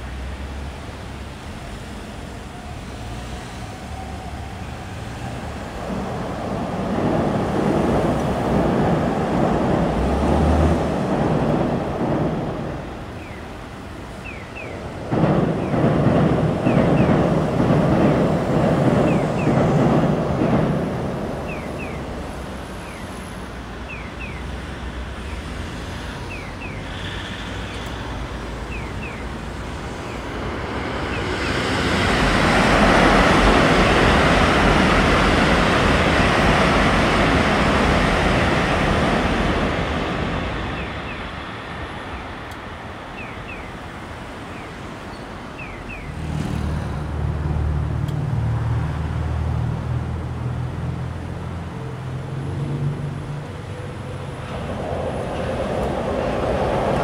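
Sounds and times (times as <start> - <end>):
train rumbling on bridge: 0.0 - 57.0
vehicle passing rush: 2.8 - 13.1, 45.9 - 57.0.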